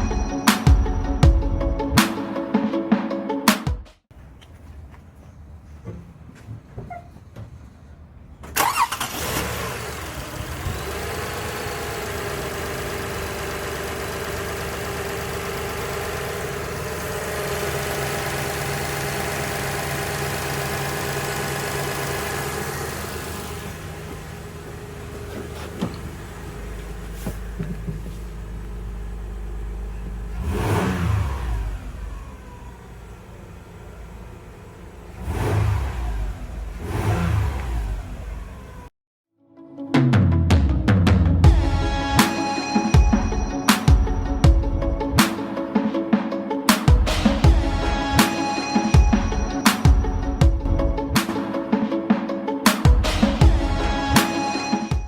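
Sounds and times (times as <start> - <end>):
car engine starting and idling: 8.2 - 38.9, 41.4 - 45.7, 46.9 - 51.8, 52.9 - 54.8
car engine revving: 8.6 - 38.9.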